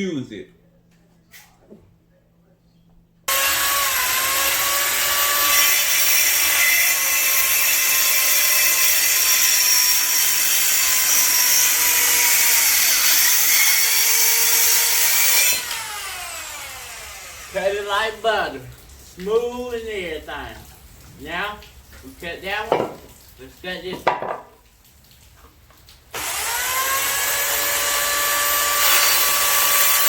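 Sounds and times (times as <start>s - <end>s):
circular saw cutting board: 3.3s - 18.0s, 26.2s - 30.0s.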